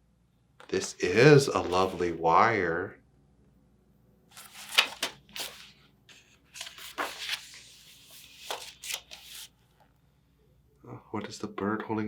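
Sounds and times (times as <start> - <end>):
book pages rustling and turning: 1.5 - 2.0, 4.3 - 9.6.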